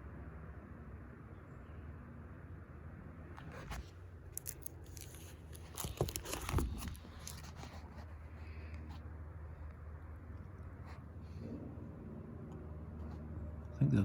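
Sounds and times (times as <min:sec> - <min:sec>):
paper rustling and crinkling: 0:03.4 - 0:09.0.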